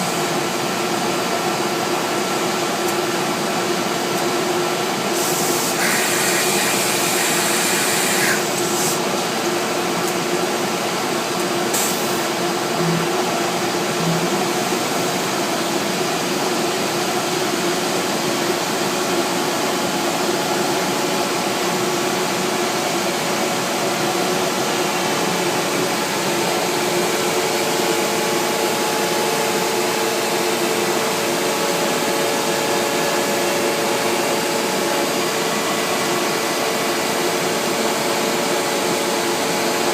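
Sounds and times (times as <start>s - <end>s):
cnc router whirring: 4.4s - 16.9s, 17.5s - 39.9s.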